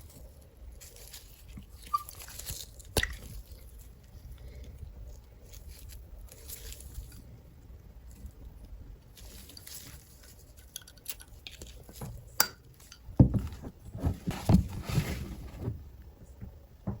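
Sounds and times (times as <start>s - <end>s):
dull knocks: 13.2s - 14.9s, 16.4s - 17.0s.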